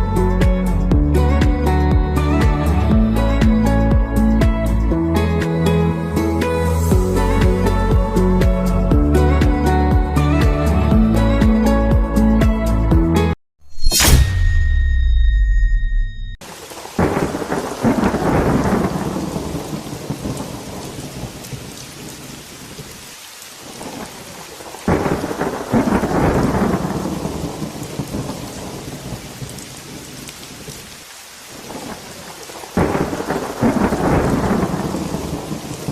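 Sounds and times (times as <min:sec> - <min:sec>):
steady rain falling: 0:16.4 - 0:35.9
thunder claps rumbling: 0:16.7 - 0:22.5, 0:23.7 - 0:30.1, 0:32.7 - 0:35.9.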